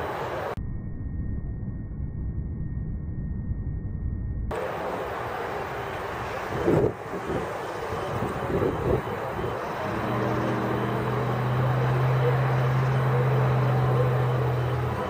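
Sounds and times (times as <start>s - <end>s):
low mechanical hum: 0.0s - 15.0s
wind buffeting microphone: 5.0s - 13.6s.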